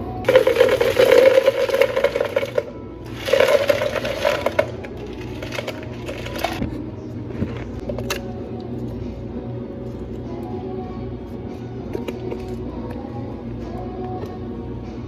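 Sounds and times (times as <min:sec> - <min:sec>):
blender motor running: 0:00.3 - 0:04.7.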